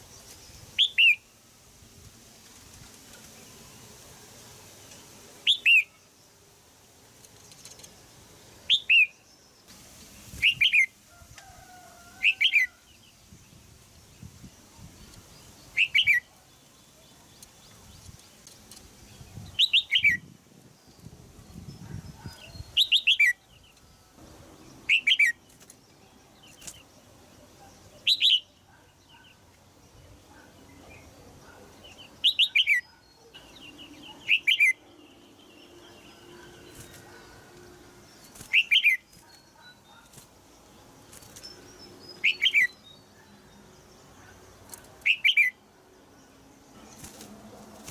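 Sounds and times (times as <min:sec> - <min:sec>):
bulbul calling: 0:38.4 - 0:40.2.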